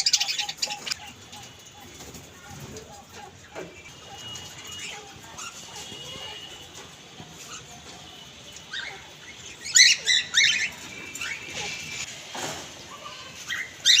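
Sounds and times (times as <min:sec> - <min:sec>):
parrot squawking: 0:00.0 - 0:01.7, 0:08.7 - 0:12.1, 0:13.5 - 0:14.0.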